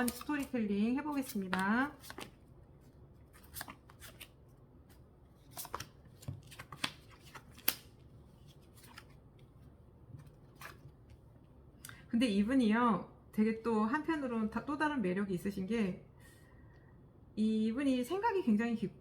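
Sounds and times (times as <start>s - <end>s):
cards rustling: 0.0s - 9.6s
cards clicking: 5.5s - 7.9s.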